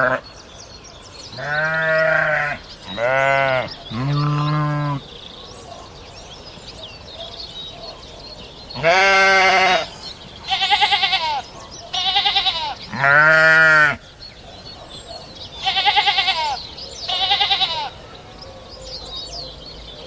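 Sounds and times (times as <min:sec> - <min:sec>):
goats bleating: 0:01.4 - 0:05.0, 0:08.8 - 0:09.9, 0:10.5 - 0:14.0, 0:15.6 - 0:18.0.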